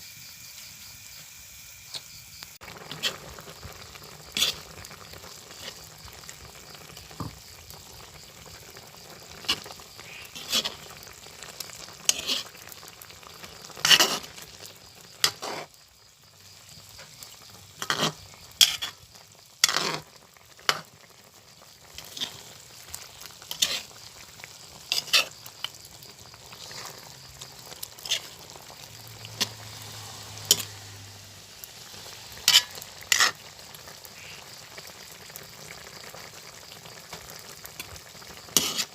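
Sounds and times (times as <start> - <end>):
chicken sizzling in pan: 0.0 - 38.9
utensil scraping pan: 2.8 - 3.3, 4.3 - 4.7, 9.4 - 10.9, 12.1 - 12.5, 13.8 - 14.4, 15.2 - 15.7, 17.8 - 19.0, 19.6 - 20.9, 23.5 - 23.9, 24.9 - 25.4, 28.0 - 28.4, 32.4 - 33.4, 38.6 - 38.9.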